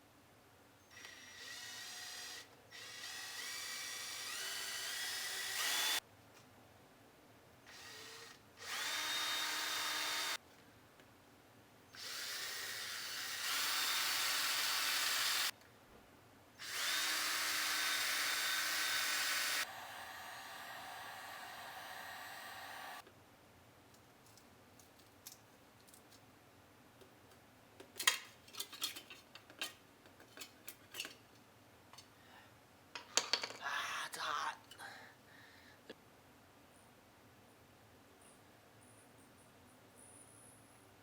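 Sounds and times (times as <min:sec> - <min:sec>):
power drill drilling metal: 0:00.9 - 0:06.0, 0:07.7 - 0:10.4, 0:12.0 - 0:15.5, 0:16.6 - 0:23.0.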